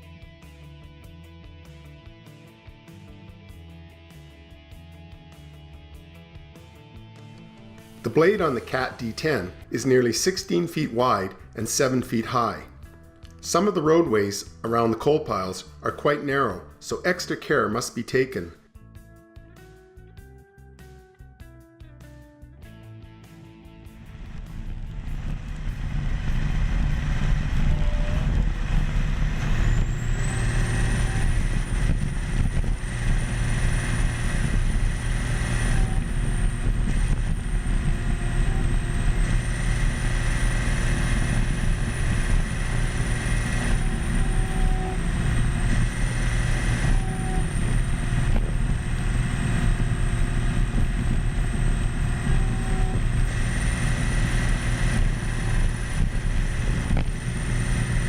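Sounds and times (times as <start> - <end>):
bulldozer diesel engine running: 7.6 - 17.4, 23.8 - 58.0
high whine: 7.6 - 18.6, 23.5 - 58.0.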